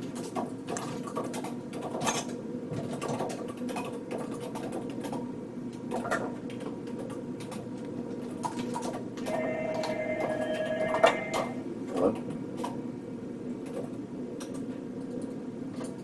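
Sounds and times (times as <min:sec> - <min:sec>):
small clicks and clatter: 0:00.0 - 0:09.3, 0:13.5 - 0:16.0
low machinery hum: 0:09.1 - 0:12.3.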